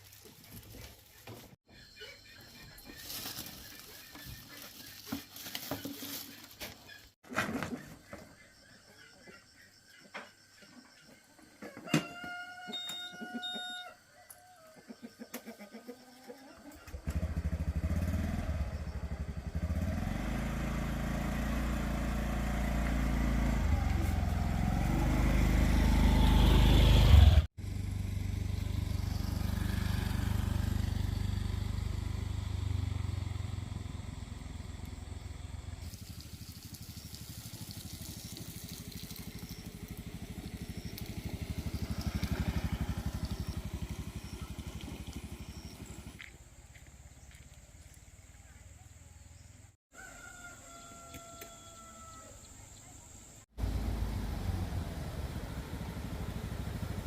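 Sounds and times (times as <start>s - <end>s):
small engine running: 16.9s - 47.5s, 53.5s - 57.0s.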